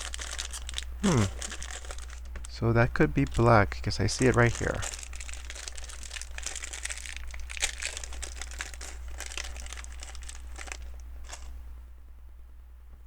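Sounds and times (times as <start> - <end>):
hands rummaging through plastic pieces: 0.0 - 2.5, 4.1 - 11.5
plastic crinkling: 0.0 - 11.6.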